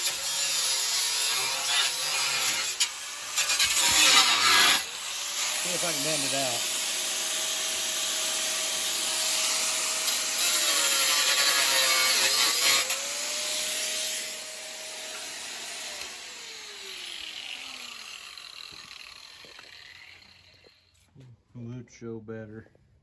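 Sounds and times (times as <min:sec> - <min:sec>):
angle grinder grinding steel: 0:00.0 - 0:21.0
grinder motor winding down: 0:15.2 - 0:20.9.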